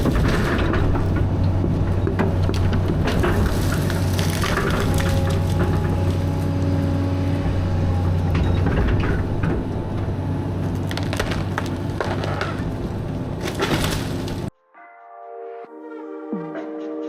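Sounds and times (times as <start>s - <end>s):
excavator diesel engine: 0.0s - 14.5s
wood cracking and splintering: 0.0s - 14.5s.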